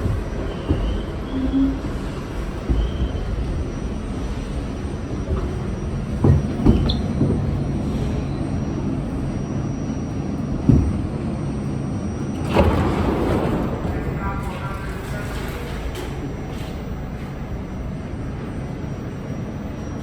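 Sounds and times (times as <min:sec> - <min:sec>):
subway car rumbling on track: 0:00.0 - 0:20.0.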